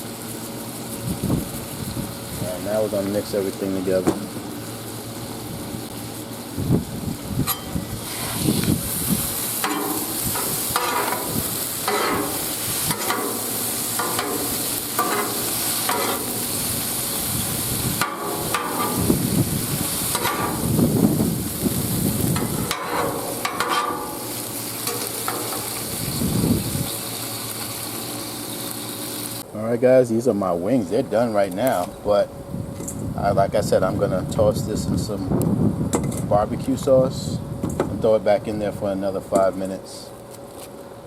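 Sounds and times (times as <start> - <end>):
food sizzling on griddle: 0.0 - 29.4
spatula scraping griddle: 7.5 - 26.2.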